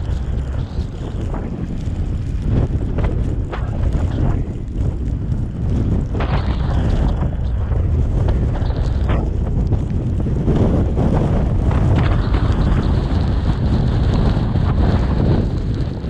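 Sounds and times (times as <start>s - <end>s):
road and engine rumble: 0.0s - 16.0s
wind buffeting microphone: 0.0s - 16.0s.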